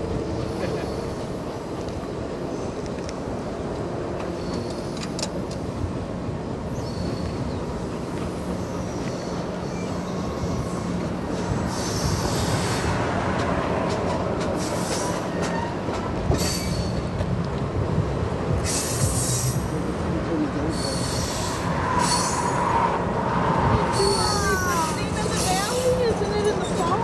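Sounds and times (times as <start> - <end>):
train cars rumbling on rails: 0.0 - 27.0
high hissing wheel squeals: 6.7 - 7.8, 11.6 - 12.9, 14.6 - 17.1, 18.6 - 19.6, 20.7 - 23.0, 23.8 - 27.0.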